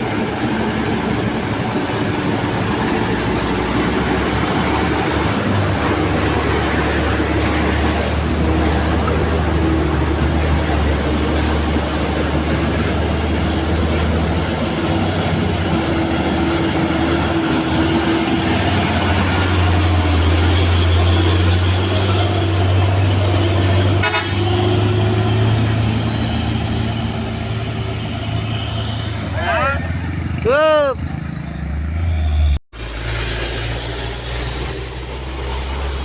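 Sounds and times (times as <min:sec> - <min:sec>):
truck engine running: 0:00.0 - 0:36.0.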